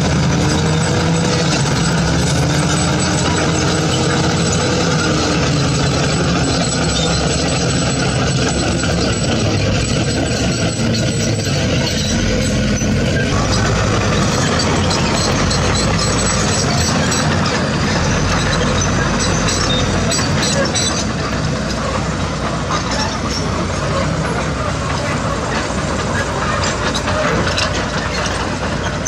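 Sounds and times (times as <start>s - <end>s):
diesel construction machinery running: 0.0s - 29.0s.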